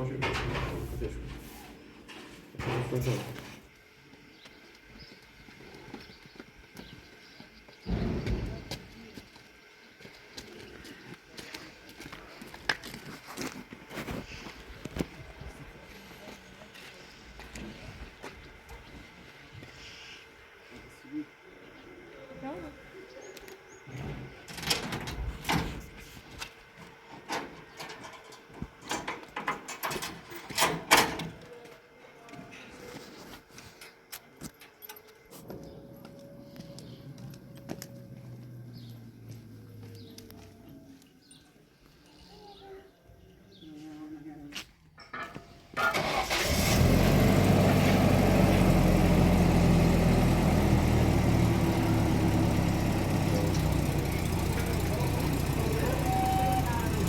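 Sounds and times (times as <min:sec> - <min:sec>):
engine idling: 0:45.8 - 0:57.0.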